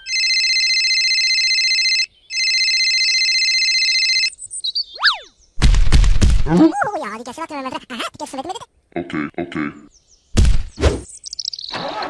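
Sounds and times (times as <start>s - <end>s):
telephone ringing: 0.0s - 4.4s
loud thump: 10.4s - 11.0s.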